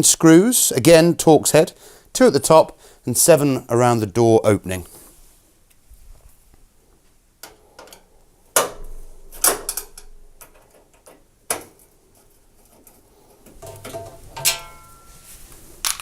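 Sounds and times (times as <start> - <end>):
short metallic ring: 14.4 - 15.4.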